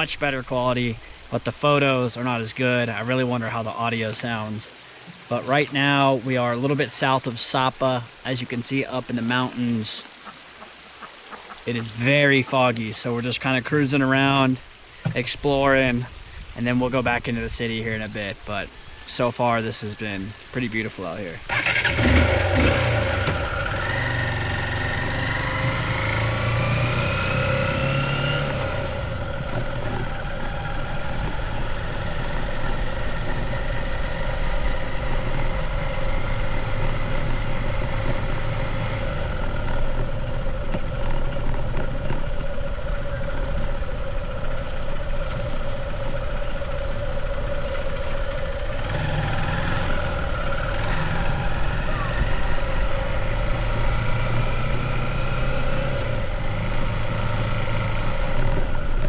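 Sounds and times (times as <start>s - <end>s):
motorbike engine speeding up: 21.5s - 59.0s.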